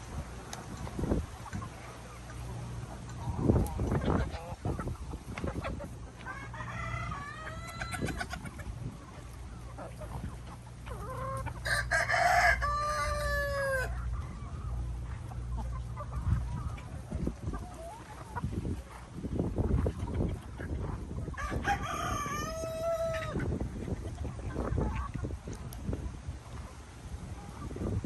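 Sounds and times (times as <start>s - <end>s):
chickens clucking: 0.0s - 28.0s
rooster crowing: 11.6s - 13.9s, 21.4s - 23.4s.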